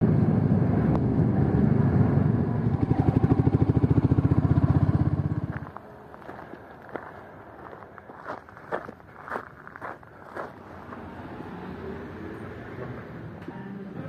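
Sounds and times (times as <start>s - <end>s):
motorcycle engine idling: 2.8s - 5.7s.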